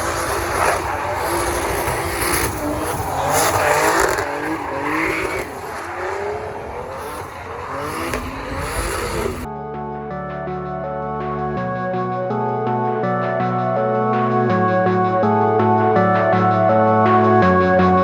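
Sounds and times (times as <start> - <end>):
car engines revving: 0.0 - 9.5
tyres squealing: 0.0 - 9.5.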